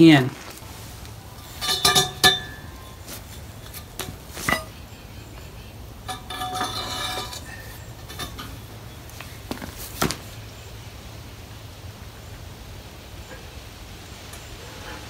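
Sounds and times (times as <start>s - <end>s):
ringing metal scraping: 0.8s - 9.2s
metal tools clanking: 1.3s - 10.2s.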